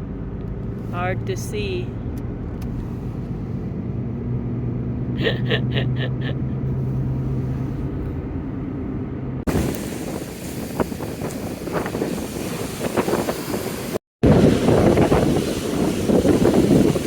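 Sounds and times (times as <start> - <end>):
vehicle engine hum from inside: 0.0 - 10.1
wind buffeting microphone: 9.4 - 17.0
lake surf: 9.5 - 17.0.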